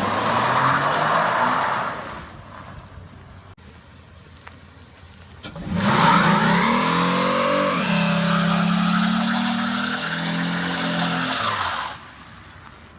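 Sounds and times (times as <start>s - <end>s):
car engine revving: 5.4s - 11.7s.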